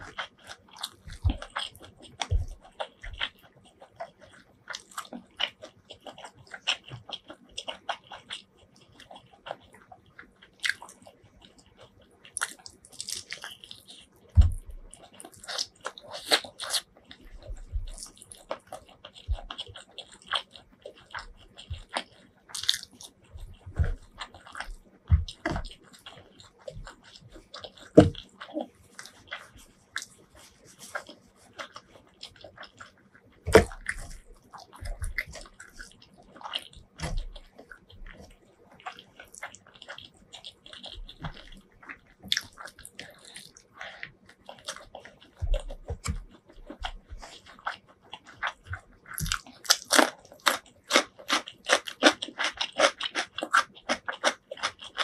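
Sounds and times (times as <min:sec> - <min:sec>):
wet chewing and mouth clicks: 0:00.0 - 0:55.0
crisp crunching: 0:12.3 - 0:55.0.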